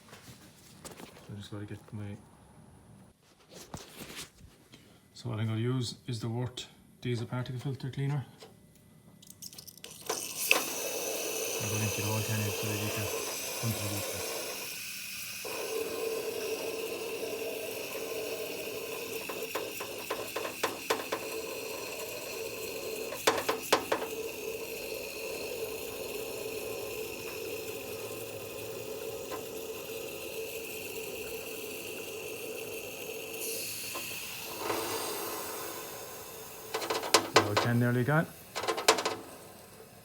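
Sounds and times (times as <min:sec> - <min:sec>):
aerosol can spraying: 0:10.1 - 0:39.5
short clicks and knocks: 0:36.7 - 0:37.9, 0:38.6 - 0:39.3.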